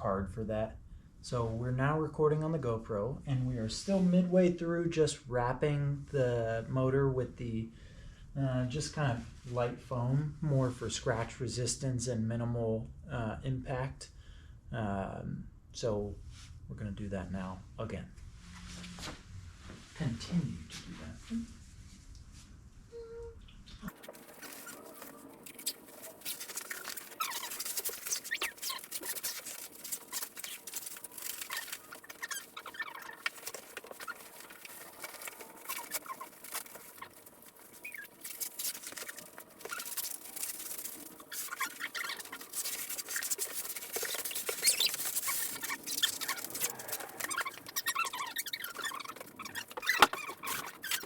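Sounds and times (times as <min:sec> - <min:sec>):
packing foam crinkling and rustling: 0:23.9 - 0:51.0.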